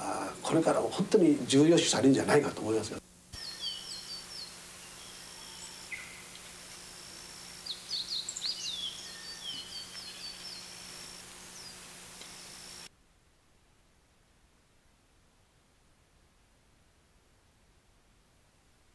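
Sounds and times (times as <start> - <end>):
steady background hiss: 0.0 - 18.9
songbirds singing: 3.4 - 12.9.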